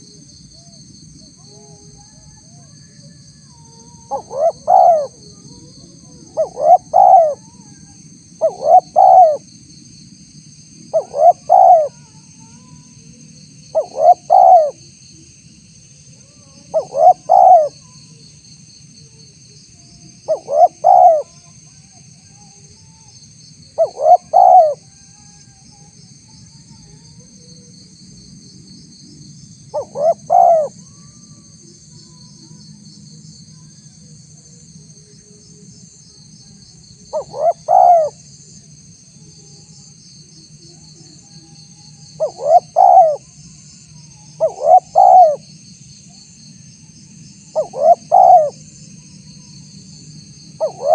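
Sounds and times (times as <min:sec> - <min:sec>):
dove cooing: 0:03.6 - 0:07.8, 0:08.4 - 0:09.4, 0:10.9 - 0:12.1, 0:13.7 - 0:14.8, 0:16.7 - 0:18.0, 0:20.2 - 0:21.3, 0:23.8 - 0:24.8, 0:29.7 - 0:30.8, 0:37.0 - 0:38.2, 0:42.1 - 0:43.2, 0:44.4 - 0:45.5, 0:47.5 - 0:48.6, 0:50.6 - 0:50.9.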